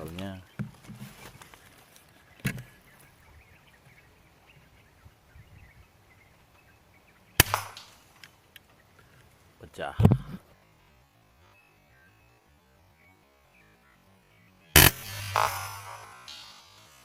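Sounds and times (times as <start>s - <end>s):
air rifle shot crack: 7.4s - 8.2s, 14.8s - 17.0s.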